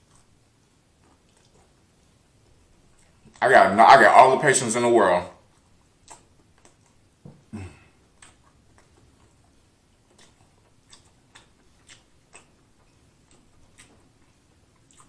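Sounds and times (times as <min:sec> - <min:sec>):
close-miked chewing: 0:00.0 - 0:15.0.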